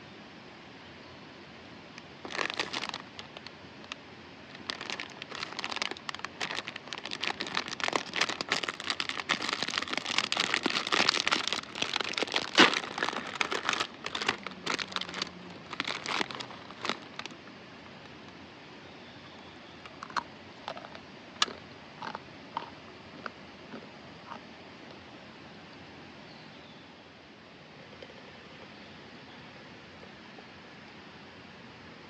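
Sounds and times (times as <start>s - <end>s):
packaging crinkling: 2.2s - 17.4s.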